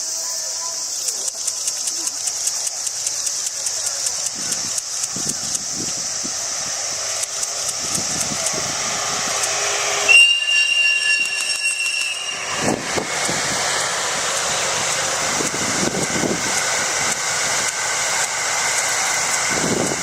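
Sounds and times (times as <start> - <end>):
steady high hiss: 0.0 - 20.0
train rumbling past: 0.0 - 20.0
locomotive whistle: 8.8 - 13.0.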